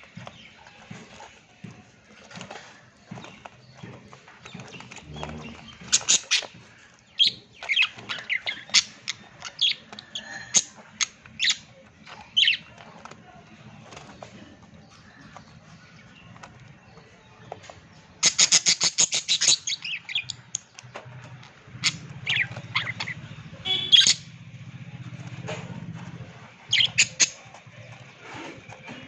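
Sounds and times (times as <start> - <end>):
parrots chirping and squawking: 0.0 - 13.1, 17.7 - 24.3, 26.0 - 29.0
birds pecking at food: 0.0 - 29.0.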